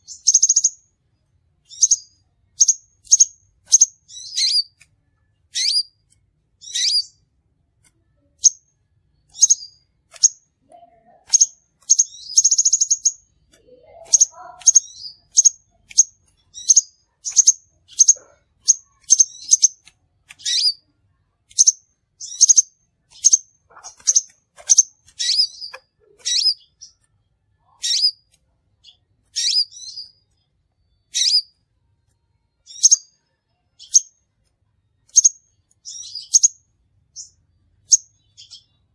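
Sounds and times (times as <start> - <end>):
buzzy bird trill: 0.0 - 0.8, 1.7 - 4.8, 5.5 - 6.0, 6.6 - 7.2, 9.2 - 20.9, 21.5 - 27.0, 27.6 - 31.6, 32.6 - 33.2, 35.1 - 38.8
high bird chirps: 0.0 - 0.8, 1.6 - 6.0, 6.6 - 7.2, 8.2 - 31.6, 32.6 - 34.2, 35.0 - 38.9.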